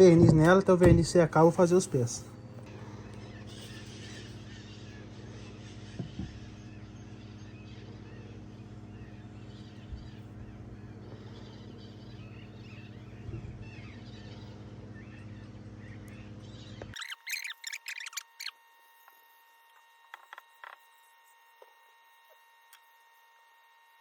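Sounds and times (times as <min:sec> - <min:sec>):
steady low hum: 0:00.0 - 0:24.0
faint bird chirps: 0:02.0 - 0:18.6.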